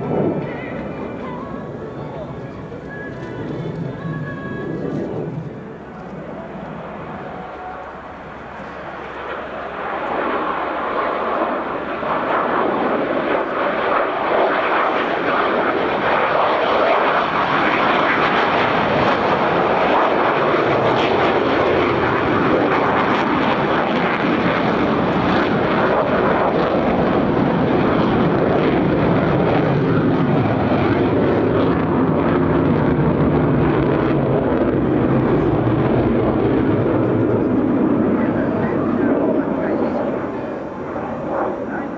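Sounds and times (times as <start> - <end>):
fighter jet roar: 0.0 - 41.9.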